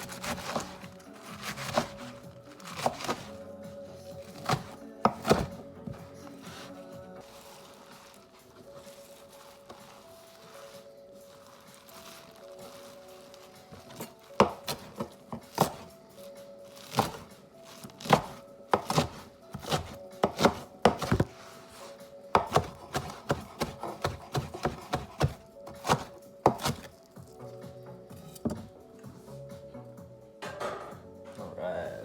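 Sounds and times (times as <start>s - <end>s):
knife chopping on cutting board: 0.0s - 3.4s, 4.2s - 6.7s, 13.8s - 15.9s, 16.8s - 17.3s, 18.0s - 21.3s, 22.3s - 26.9s.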